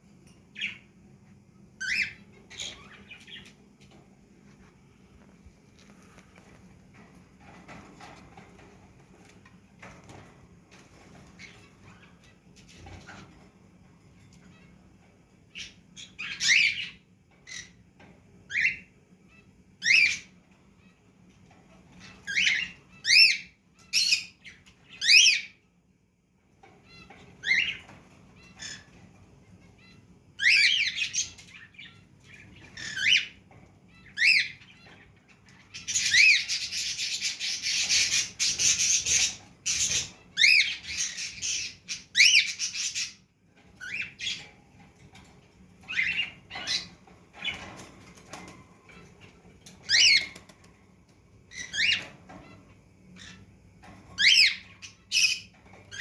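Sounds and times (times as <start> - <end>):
parrots squawking: 35.6 - 43.2, 49.8 - 50.4, 54.2 - 56.0.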